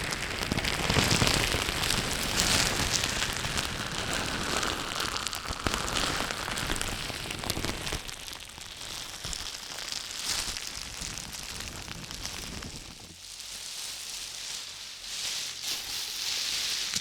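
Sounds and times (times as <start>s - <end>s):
crackling and scratching clicks: 0.0s - 13.2s.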